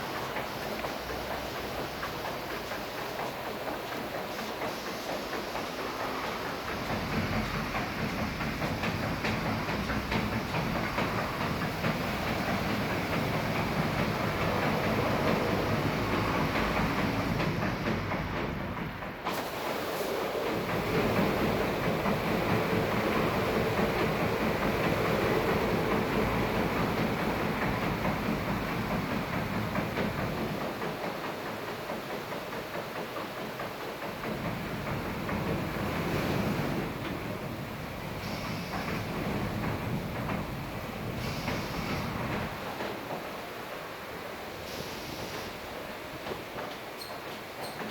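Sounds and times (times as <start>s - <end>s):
water spray hiss: 0.0s - 18.1s, 19.2s - 31.0s, 37.6s - 39.6s, 40.5s - 42.7s, 43.3s - 45.9s
clattering car wash machinery: 0.0s - 47.9s.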